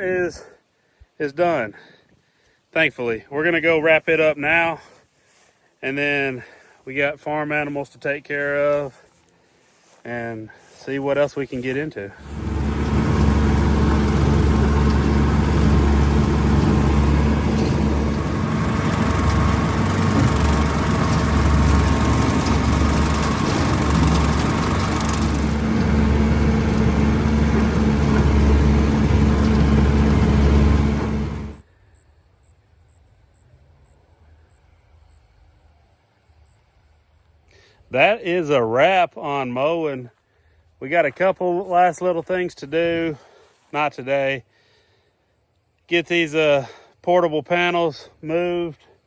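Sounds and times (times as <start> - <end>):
tractor engine running: 12.2 - 31.6.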